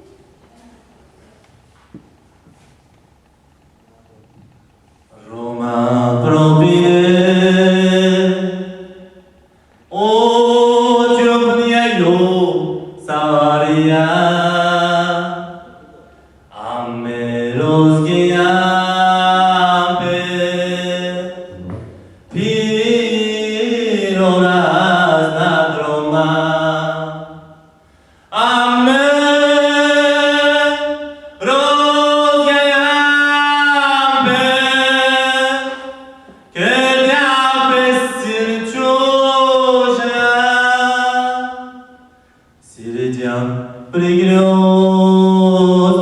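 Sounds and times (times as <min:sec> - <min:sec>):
person singing unaccompanied: 0:05.1 - 0:09.1, 0:16.5 - 0:27.4.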